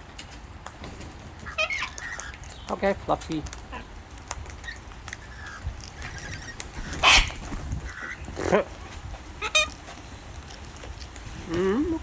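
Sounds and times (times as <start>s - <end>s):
cockatoos screeching: 1.5s - 2.4s, 4.6s - 8.5s.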